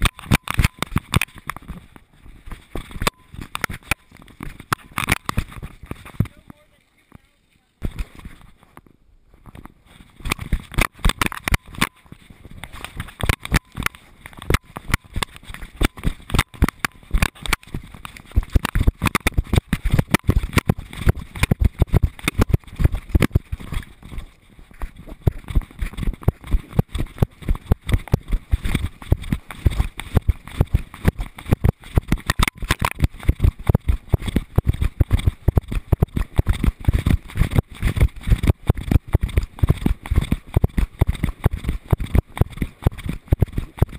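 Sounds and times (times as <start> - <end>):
camera mount knocking and rattling: 0.0 - 1.8, 2.8 - 6.2, 9.4 - 12.0
dog footfalls on dirt: 12.6 - 43.9.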